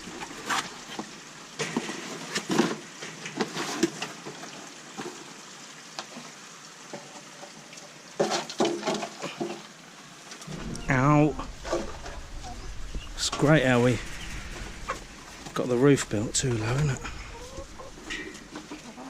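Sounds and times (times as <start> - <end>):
crackly rustling: 10.2 - 19.0.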